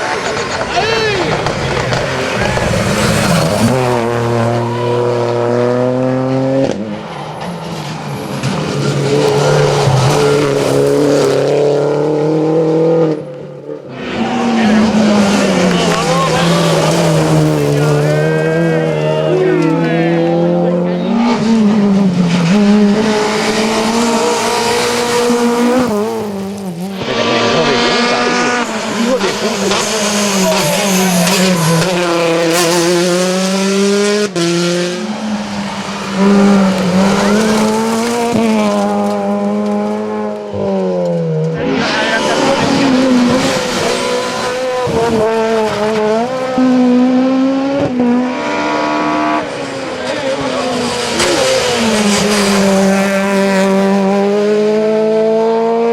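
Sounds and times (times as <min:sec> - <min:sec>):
rally car engine at high revs: 0:00.0 - 0:55.9.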